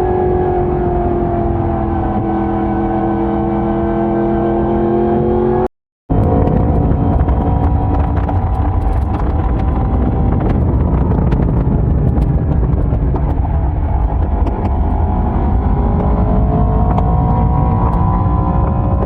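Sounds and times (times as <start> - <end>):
motorcycle engine running: 6.1 - 19.0
rumble: 6.1 - 19.0.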